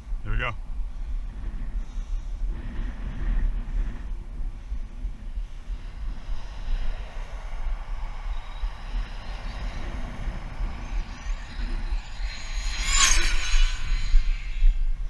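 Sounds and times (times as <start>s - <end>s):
wind buffeting microphone: 0.0s - 15.0s
electric motor whine: 5.8s - 15.0s.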